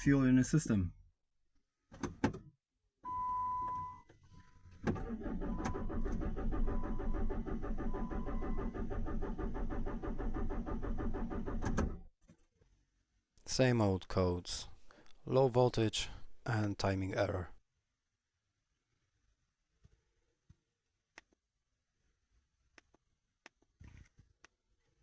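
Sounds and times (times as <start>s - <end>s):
starter cranking engine: 4.9s - 12.0s.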